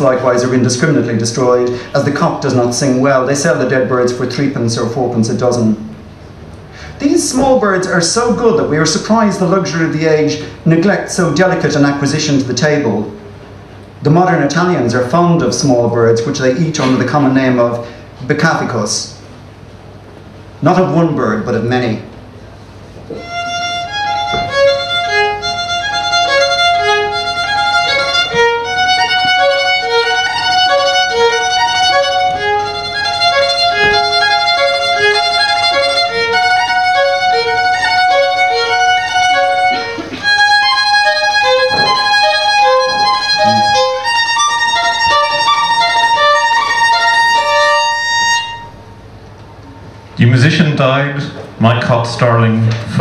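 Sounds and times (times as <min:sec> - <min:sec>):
violin playing short notes: 0:23.1 - 0:48.9.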